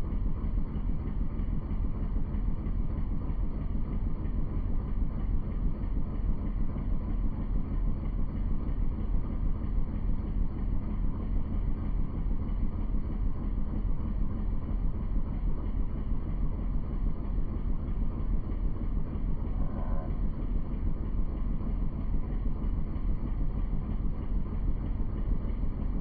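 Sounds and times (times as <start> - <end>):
boat engine rumble: 10.6 - 26.0.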